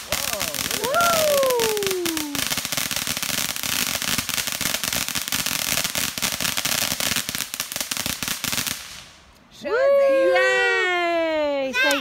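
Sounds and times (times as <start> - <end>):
firework crackling and hissing: 0.0 - 9.4.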